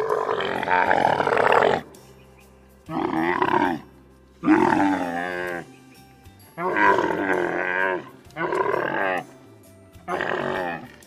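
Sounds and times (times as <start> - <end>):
camel moaning calls: 0.0 - 2.0, 2.9 - 5.8, 6.6 - 9.4, 10.0 - 11.0.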